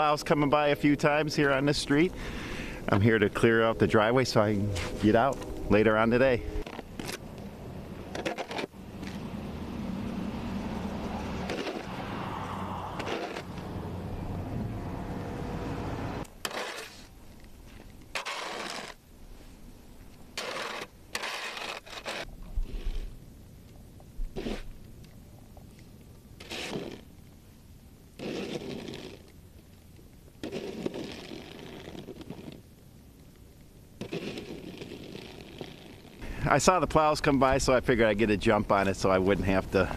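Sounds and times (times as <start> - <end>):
snow shovel scraping snow: 0.4 - 7.2, 8.0 - 9.2, 11.2 - 13.8, 16.4 - 19.6, 20.2 - 23.2, 24.3 - 24.8, 26.4 - 27.1, 28.2 - 29.3, 30.4 - 32.6, 34.0 - 36.6
engine low drone: 0.7 - 16.5.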